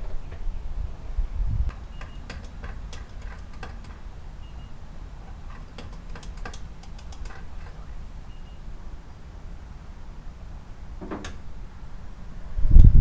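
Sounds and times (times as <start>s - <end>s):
light clicks and taps: 5.3s - 8.0s.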